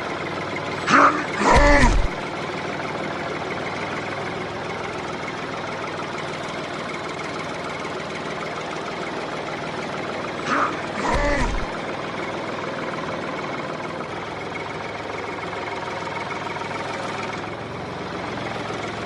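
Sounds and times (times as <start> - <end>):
engine-like drone: 0.0 - 19.0
short loud pitched sounds: 0.9 - 2.2, 10.5 - 11.8.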